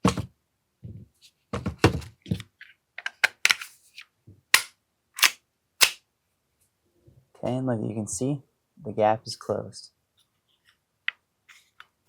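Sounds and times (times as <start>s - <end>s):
pistol parts clicking and snapping: 3.0s - 3.7s, 4.6s - 6.0s.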